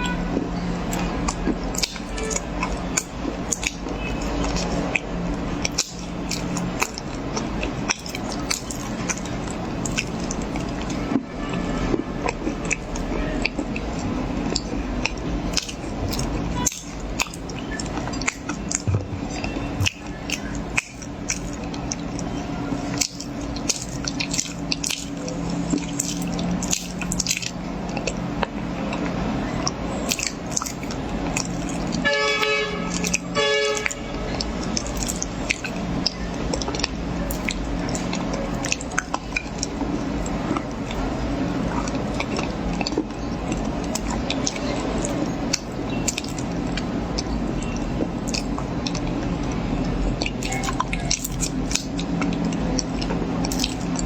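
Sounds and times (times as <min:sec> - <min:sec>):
chewing crunches: 0:00.0 - 0:11.2, 0:11.9 - 0:54.0
steady low hum: 0:00.0 - 0:54.0
horn-like tone: 0:32.0 - 0:34.2.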